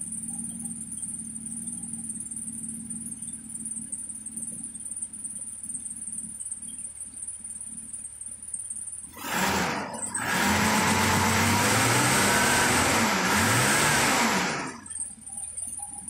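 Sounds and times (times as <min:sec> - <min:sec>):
car engine revving: 0:09.1 - 0:15.7.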